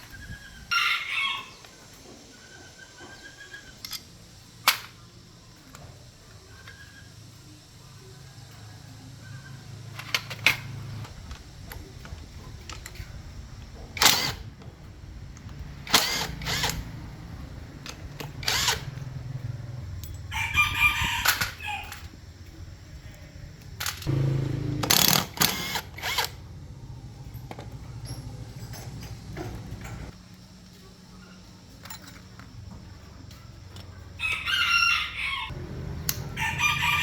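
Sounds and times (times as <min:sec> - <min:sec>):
steady low hum: 0:00.0 - 0:34.5
rooster crowing: 0:00.5 - 0:01.9, 0:07.8 - 0:10.0, 0:20.2 - 0:22.1, 0:34.0 - 0:37.0
tool knocks and clanks: 0:27.4 - 0:30.1.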